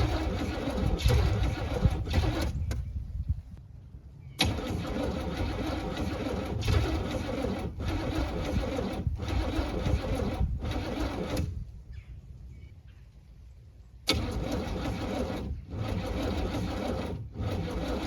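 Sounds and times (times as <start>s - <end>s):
car engine cranking on starter: 0.0s - 2.9s, 4.4s - 11.8s, 14.0s - 18.0s.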